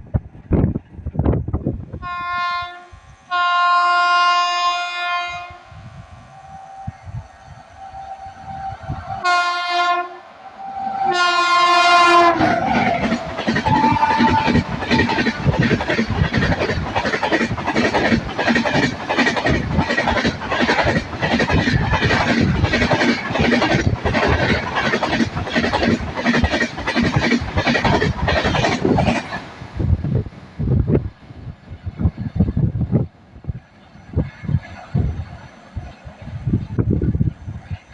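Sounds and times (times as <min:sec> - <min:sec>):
train horn blasts: 0:02.0 - 0:12.8, 0:13.6 - 0:15.2
train wheels clattering over rail joints: 0:12.3 - 0:30.3.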